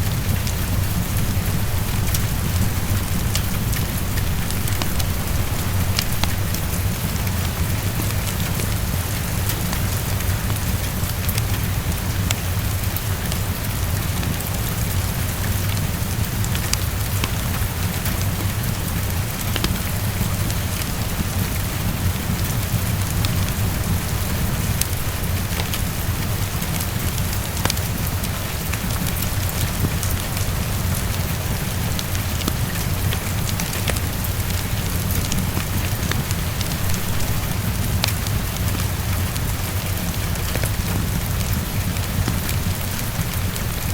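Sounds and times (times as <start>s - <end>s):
low rumble: 0.0s - 9.5s, 34.7s - 40.3s
heavy rain: 0.0s - 43.9s.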